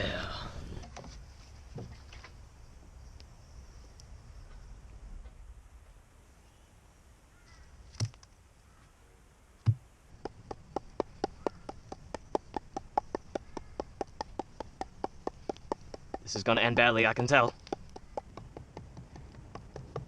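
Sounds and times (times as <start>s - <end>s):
fast light knocks: 9.6s - 20.0s
sharp knocks: 9.6s - 20.0s.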